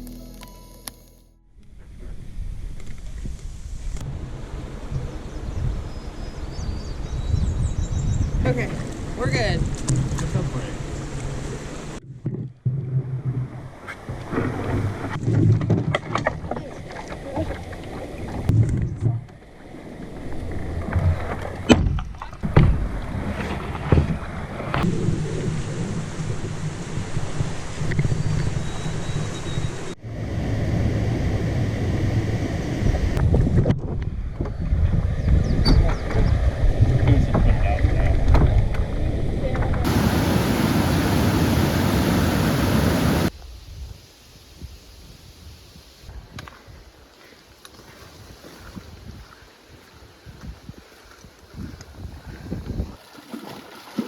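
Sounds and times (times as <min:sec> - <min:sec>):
wind rumble on microphone: 0:01.6 - 0:47.0, 0:47.8 - 0:53.1
canoe paddling water sounds: 0:08.4 - 0:33.2, 0:35.7 - 0:43.5, 0:45.8 - 0:54.0
steady hiss: 0:39.9 - 0:46.1.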